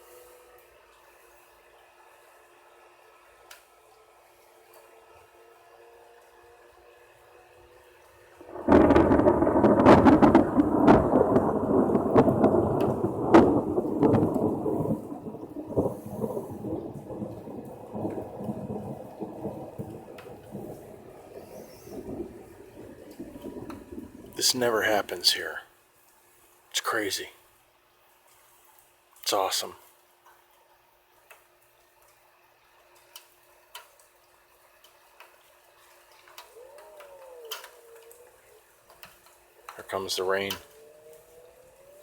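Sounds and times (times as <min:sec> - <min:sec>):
faint steady hum: 0:08.1 - 0:25.7
thunder rumbling: 0:08.4 - 0:25.3
raindrops ticking: 0:08.4 - 0:25.6, 0:34.8 - 0:42.0.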